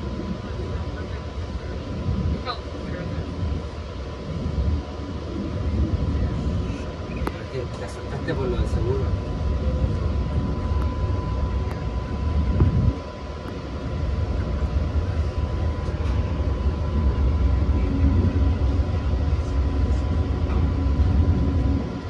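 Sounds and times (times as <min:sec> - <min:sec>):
train wheels rumbling on track: 0:00.0 - 0:22.0.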